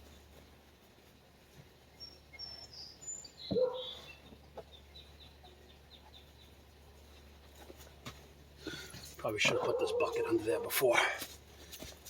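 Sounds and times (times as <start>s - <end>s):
birds chirping: 1.8s - 7.5s.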